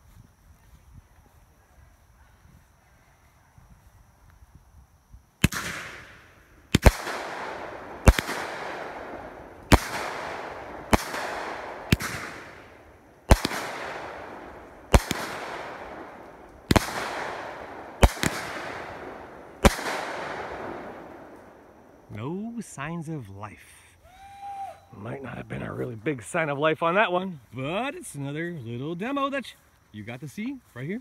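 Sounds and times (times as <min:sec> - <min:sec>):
firework shots banging: 0:05.4 - 0:21.8
firework hiss: 0:05.4 - 0:22.8.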